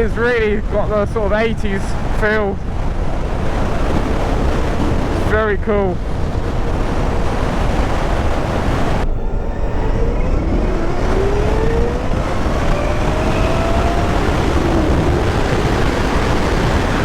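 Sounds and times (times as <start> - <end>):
wind buffeting microphone: 0.0 - 17.0
electric motorcycle motor whine: 6.0 - 17.0.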